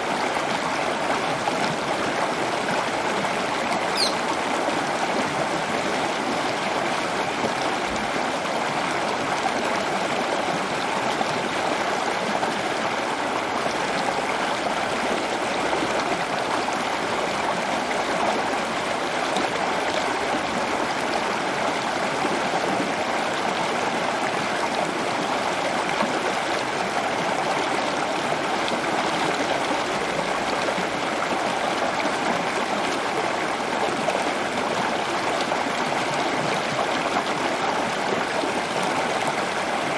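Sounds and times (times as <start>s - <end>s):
running water flowing: 0.0s - 39.9s.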